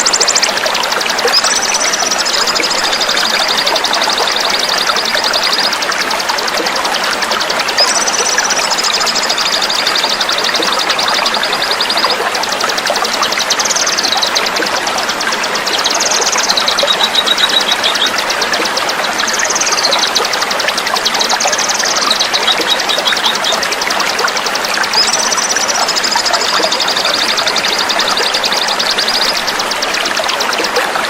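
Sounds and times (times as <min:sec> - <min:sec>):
flowing water rushing: 0:00.0 - 0:31.0
songbird trilling: 0:24.9 - 0:29.6.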